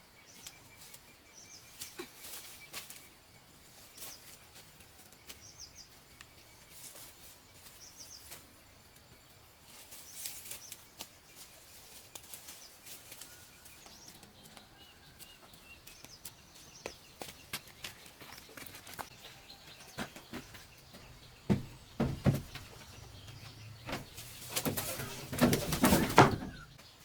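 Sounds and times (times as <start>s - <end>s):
small birds chirping: 0.0s - 27.0s
rustles: 0.3s - 27.0s.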